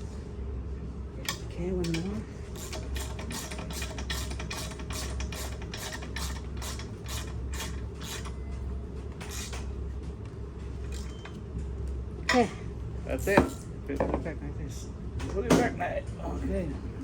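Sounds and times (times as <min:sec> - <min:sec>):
constant low hum: 0:00.0 - 0:17.0
socket ratchet strokes: 0:01.3 - 0:08.4, 0:09.2 - 0:09.7.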